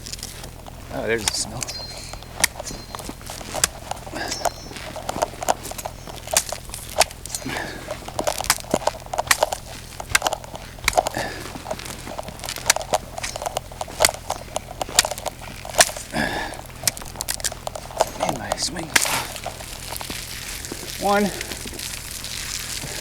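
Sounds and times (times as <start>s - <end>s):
footsteps crunching icy snow: 0.0s - 23.0s.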